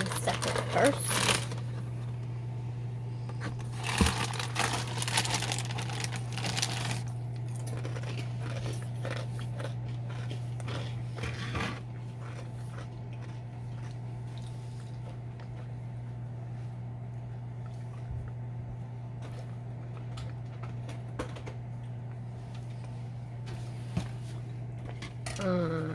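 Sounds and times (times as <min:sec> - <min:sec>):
low hum: 0:00.0 - 0:25.9
cereal crunching: 0:03.4 - 0:15.7.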